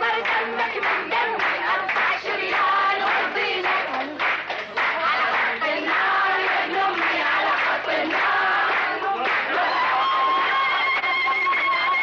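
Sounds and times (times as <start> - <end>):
women singing chants: 0.0 - 10.4
people clapping: 0.0 - 12.0.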